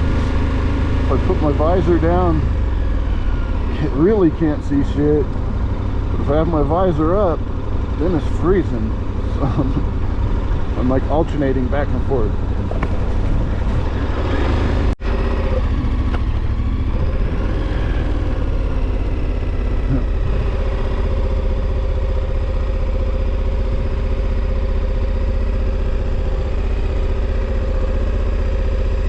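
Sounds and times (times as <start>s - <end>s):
motorcycle engine cruising: 0.0s - 29.0s
wind rumble on microphone: 12.4s - 14.9s.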